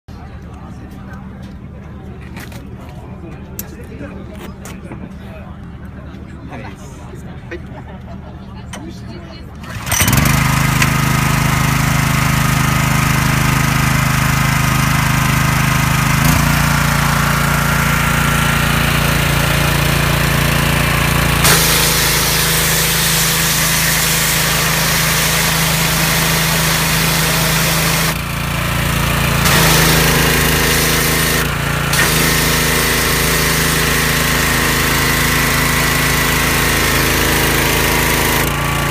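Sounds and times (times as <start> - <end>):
small engine running: 8.8 - 38.9
spray hissing from nozzle: 21.4 - 28.1, 29.4 - 34.1.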